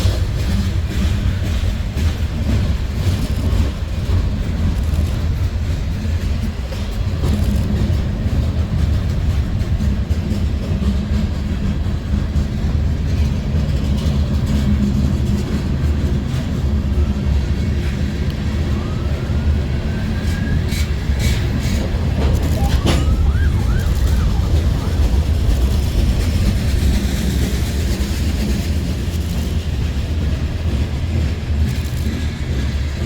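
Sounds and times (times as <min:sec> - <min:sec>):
train rumbling past: 0:00.0 - 0:33.0
siren rising in pitch: 0:18.4 - 0:21.1, 0:22.2 - 0:25.8.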